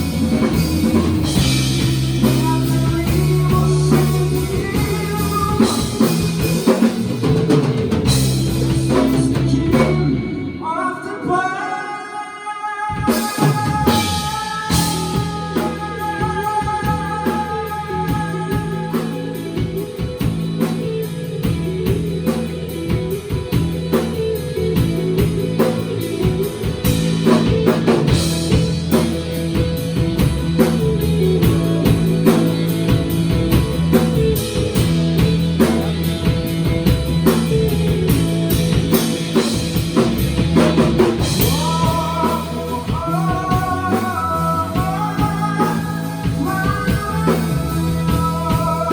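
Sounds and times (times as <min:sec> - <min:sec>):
person singing: 0:00.0 - 0:06.9, 0:08.4 - 0:21.4, 0:41.1 - 0:48.9
drum kit: 0:00.0 - 0:10.6, 0:12.9 - 0:48.9
bass guitar: 0:00.0 - 0:11.1, 0:13.0 - 0:48.9
electric guitars: 0:00.0 - 0:48.9.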